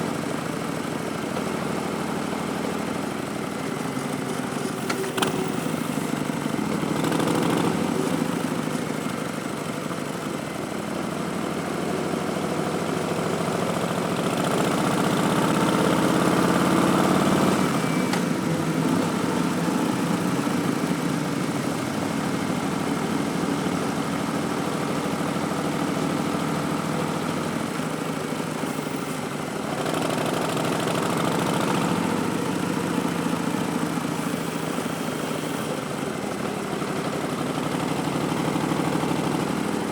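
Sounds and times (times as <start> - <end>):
motorcycle engine revving: 4.8 - 8.7, 12.1 - 27.5, 29.6 - 35.7.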